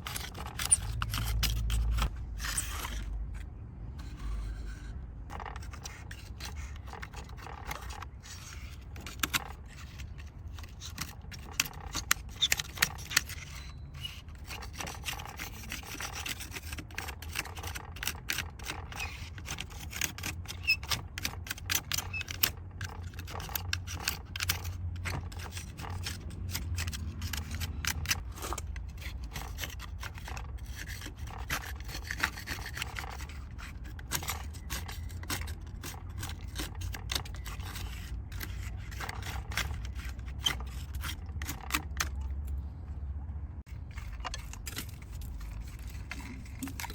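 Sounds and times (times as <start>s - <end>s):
scraping and rubbing on model truck: 0.0s - 42.7s, 43.6s - 46.9s.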